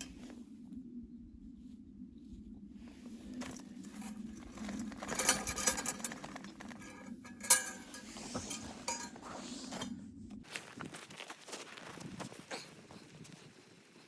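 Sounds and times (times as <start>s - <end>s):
low background hum: 0.0s - 11.5s
small objects rustling and scraping: 2.9s - 13.8s
light metallic clinks: 5.0s - 9.2s.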